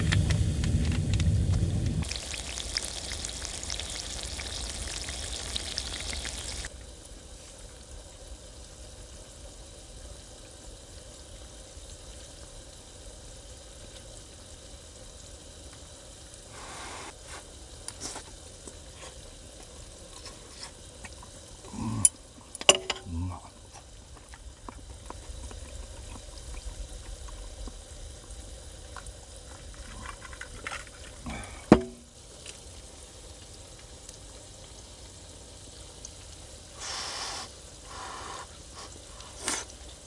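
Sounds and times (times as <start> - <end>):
food sizzling in a pan: 2.0 - 40.0
short hissing burst: 16.5 - 17.6, 36.7 - 39.8.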